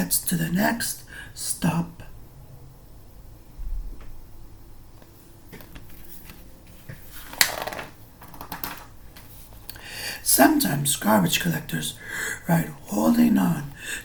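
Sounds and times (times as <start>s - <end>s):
book pages turning: 5.0s - 8.6s.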